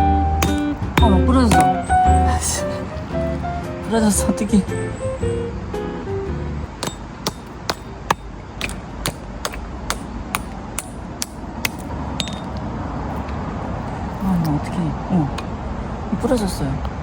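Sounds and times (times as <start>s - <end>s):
tent pegs being hammered: 0.4s - 1.8s, 6.7s - 12.5s.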